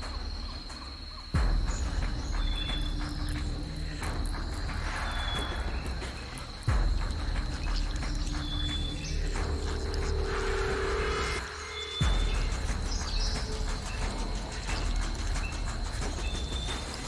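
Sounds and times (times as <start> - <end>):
insects trilling: 0.0 - 17.0
low rumble: 0.0 - 17.0.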